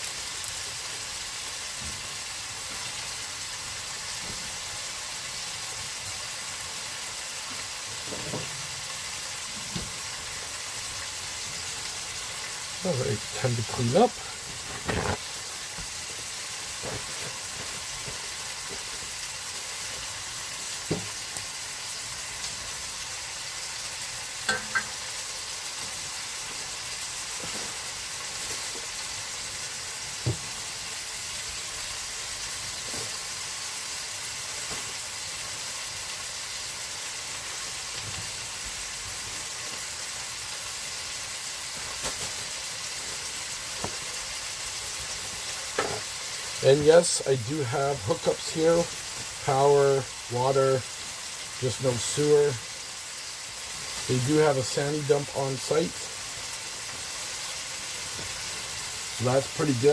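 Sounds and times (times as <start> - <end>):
food sizzling in a pan: 0.0 - 59.9
cookware knocking and clinking: 24.5 - 24.9.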